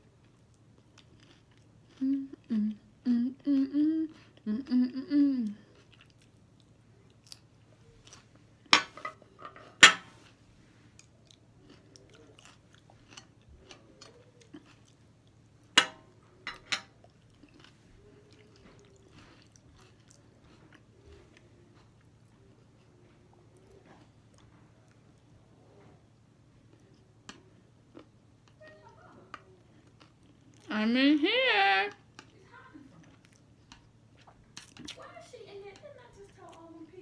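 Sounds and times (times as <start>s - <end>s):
close-up chewing: 0.1s - 2.4s, 5.6s - 8.5s, 10.8s - 30.7s, 31.9s - 35.1s
person humming: 2.0s - 5.8s
chopsticks and plates clacking: 8.7s - 10.1s, 15.8s - 17.0s.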